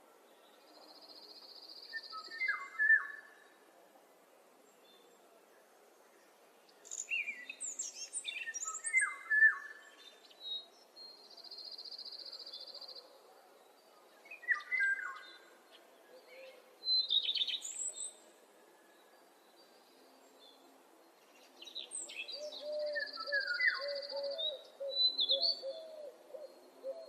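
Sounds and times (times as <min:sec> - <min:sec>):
faint background noise: 0:00.0 - 0:27.0
songbirds whistling: 0:21.7 - 0:27.0.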